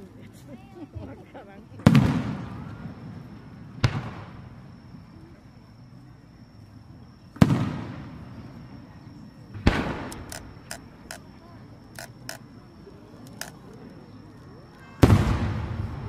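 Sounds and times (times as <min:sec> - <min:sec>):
firework shells bursting: 0:09.7 - 0:11.3, 0:11.9 - 0:12.4, 0:13.2 - 0:13.9.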